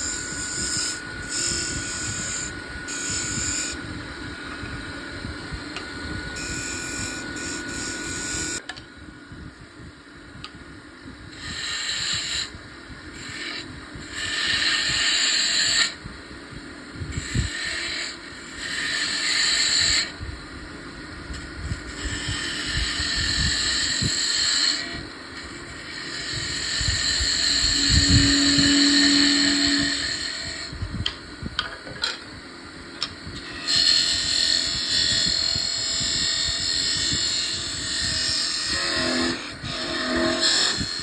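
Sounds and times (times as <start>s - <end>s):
tool scraping wood on a lathe: 0.0s - 3.8s, 11.4s - 12.5s, 13.2s - 16.0s, 17.2s - 20.1s, 21.9s - 30.7s, 33.4s - 41.0s.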